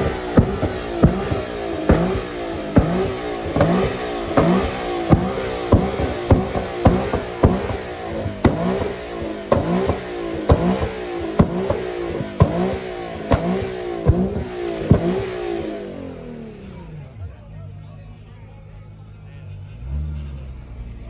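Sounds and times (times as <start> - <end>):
sharp cracks from exhaust: 0.0 - 16.8
car engine revving: 0.0 - 21.0.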